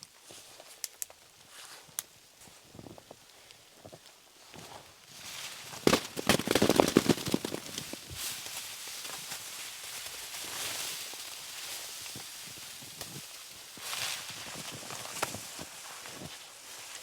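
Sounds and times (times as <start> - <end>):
dry wood cracking: 5.7 - 8.3.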